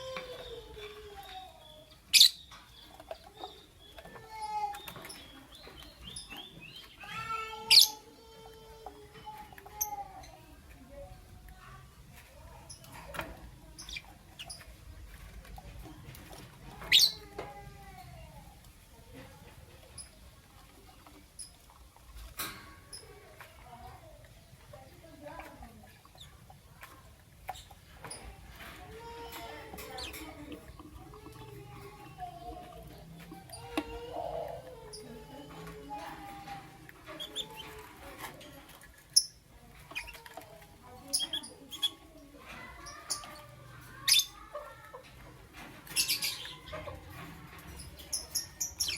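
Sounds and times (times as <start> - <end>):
lovebirds chirping: 0.0 - 11.0, 12.4 - 17.3, 45.6 - 48.9.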